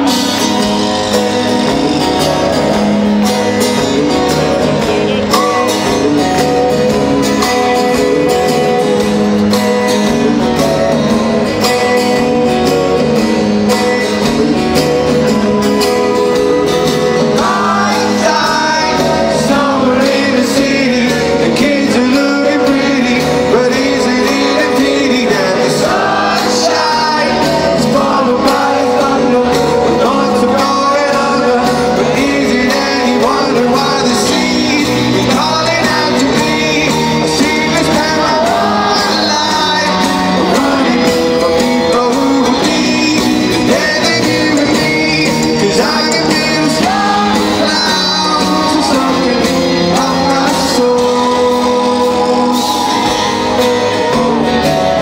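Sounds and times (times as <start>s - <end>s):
live rock band playing: 0.0s - 55.0s
person singing: 0.0s - 55.0s.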